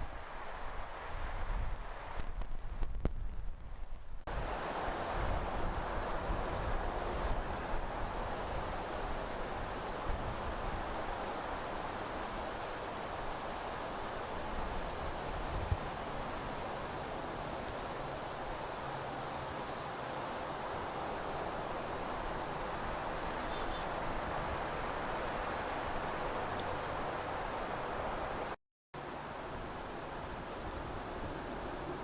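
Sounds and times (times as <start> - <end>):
wind rustling through trees: 0.0 - 32.0
short bird chirp: 23.2 - 23.8.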